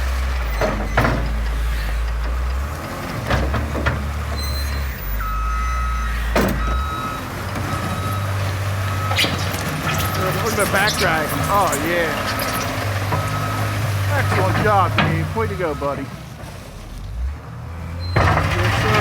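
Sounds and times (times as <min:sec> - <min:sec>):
diesel engine under load: 0:00.0 - 0:19.0
backup alarm beeping: 0:04.4 - 0:16.2
bucket clanking and scraping: 0:07.4 - 0:16.9.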